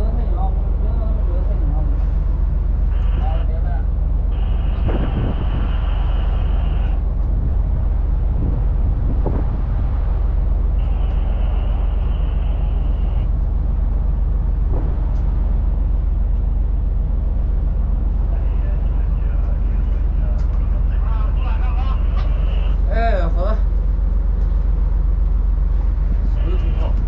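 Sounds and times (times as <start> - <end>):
wind buffeting microphone: 2.3 - 18.4.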